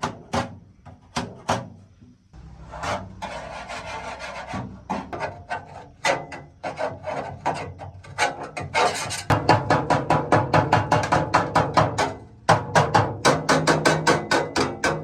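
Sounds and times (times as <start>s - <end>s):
hand tool scraping metal part: 2.6s - 9.3s.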